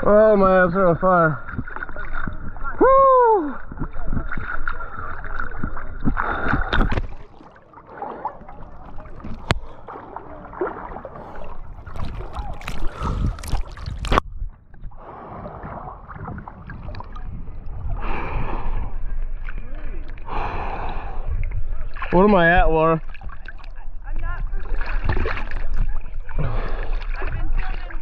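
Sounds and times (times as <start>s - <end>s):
river water gurgling: 0.0s - 14.2s
steady low rumble: 8.7s - 22.1s.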